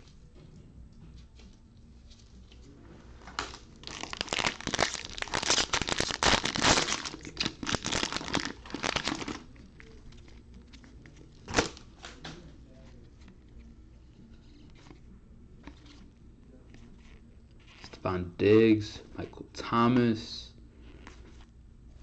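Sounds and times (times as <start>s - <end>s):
plastic wrapper crinkling: 3.4s - 11.9s.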